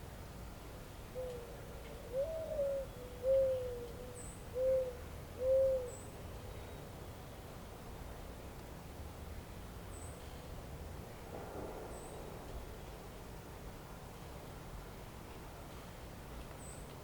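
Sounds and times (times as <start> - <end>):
bird hooting softly: 1.1 - 6.8.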